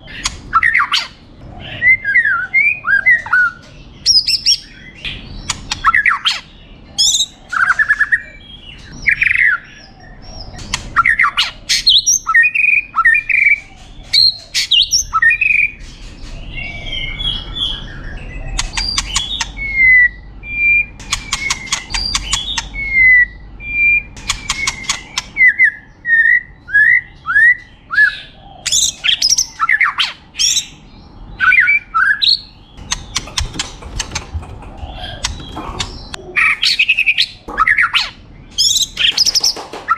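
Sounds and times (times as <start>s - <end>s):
bird singing whistled song: 16.5s - 30.8s, 31.4s - 32.9s
rapid rattling clicks: 32.8s - 36.2s.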